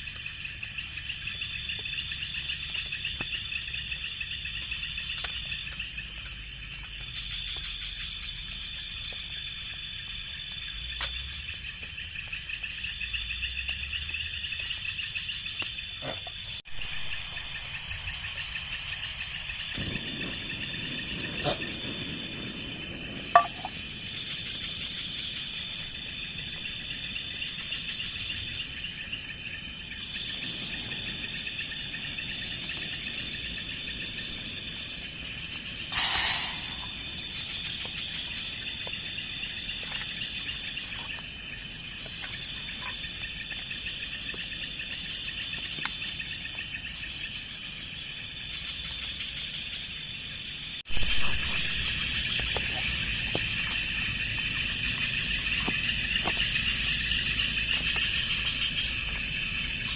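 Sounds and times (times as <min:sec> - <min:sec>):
crickets chirring: 0:00.0 - 0:59.9
loud hiss: 0:16.0 - 0:39.8, 0:49.3 - 0:59.9.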